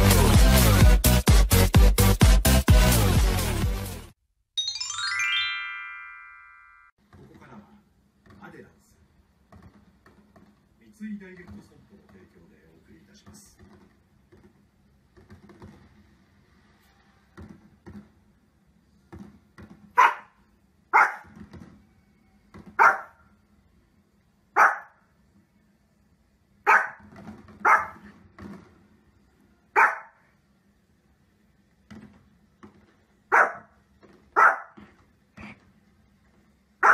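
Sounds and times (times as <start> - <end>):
dog barking: 20.0 - 21.3, 22.8 - 23.2, 24.6 - 25.0, 26.6 - 27.0, 27.6 - 28.1, 29.8 - 30.3, 33.3 - 33.8, 34.4 - 34.8.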